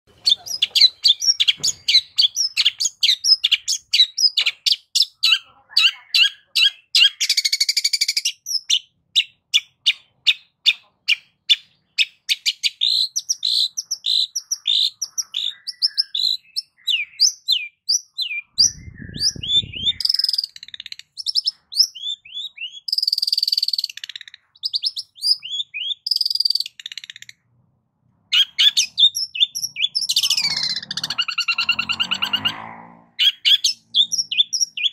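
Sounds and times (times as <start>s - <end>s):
bird singing chips and whistles: 0.2s - 5.2s, 11.5s - 27.3s, 28.3s - 32.5s, 33.2s - 34.9s
low rasping sound: 30.2s - 33.2s.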